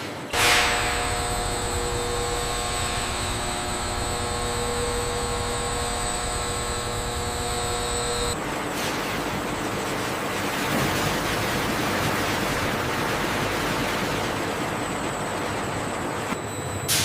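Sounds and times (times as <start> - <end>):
mechanical drone with whining tones: 0.1 - 17.0.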